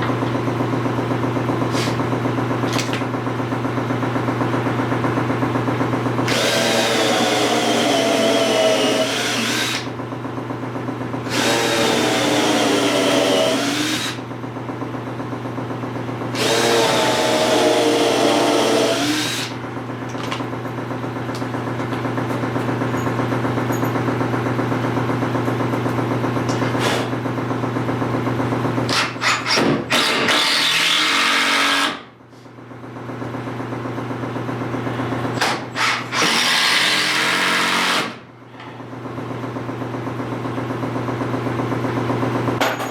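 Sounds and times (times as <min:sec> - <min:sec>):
power drill running: 0:06.2 - 0:10.0, 0:11.2 - 0:14.3, 0:16.3 - 0:19.7, 0:28.9 - 0:32.0, 0:35.4 - 0:38.2.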